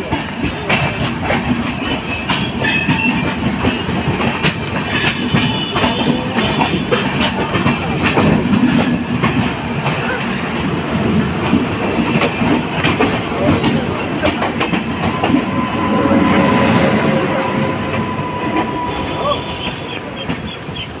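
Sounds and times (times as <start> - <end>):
wheels clicking over rail joints: 0.0 - 15.2
train coaches rumbling past: 0.0 - 21.0.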